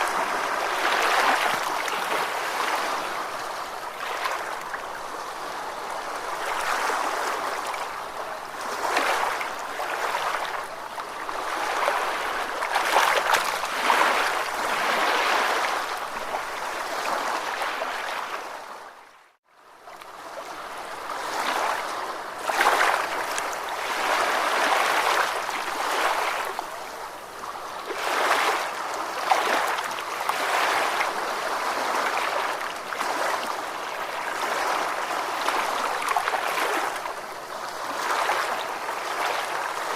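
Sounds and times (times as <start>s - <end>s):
ocean waves washing: 0.0s - 18.7s.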